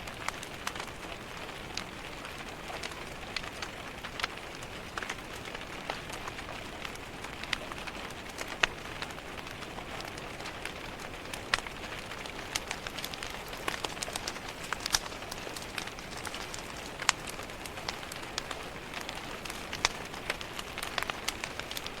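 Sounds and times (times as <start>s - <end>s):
rain hissing on a window: 0.0s - 22.0s
wood fire crackling and popping: 0.0s - 22.0s.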